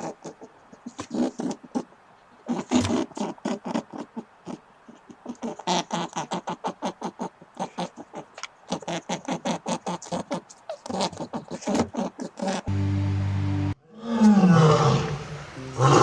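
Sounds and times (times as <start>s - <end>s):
animal giving rapid short calls: 0.0s - 12.7s.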